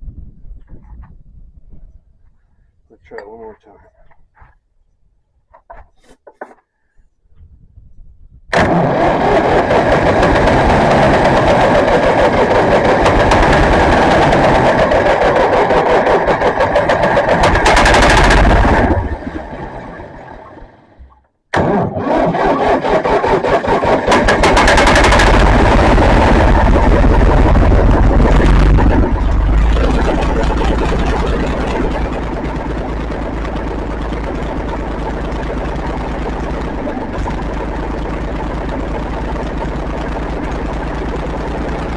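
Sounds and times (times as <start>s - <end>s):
tractor engine starting and running: 8.5s - 41.9s.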